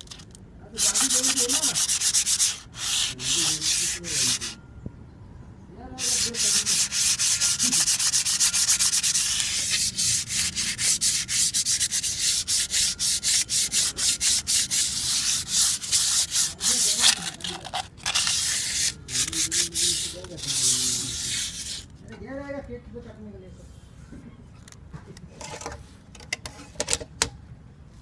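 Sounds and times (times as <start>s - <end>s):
abrasive rubbing on metal: 0.8s - 4.6s, 6.0s - 21.9s.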